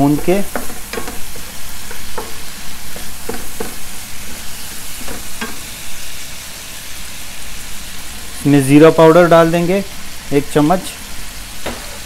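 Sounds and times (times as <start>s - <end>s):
spatula scraping a pan: 0.0s - 5.8s
chicken sizzling in oil: 0.0s - 12.0s.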